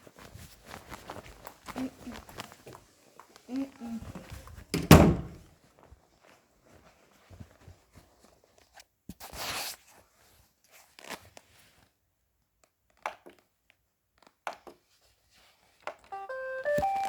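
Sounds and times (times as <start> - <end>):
knocks: 4.8 - 5.4
robot vacuum electronic tune: 16.2 - 17.0.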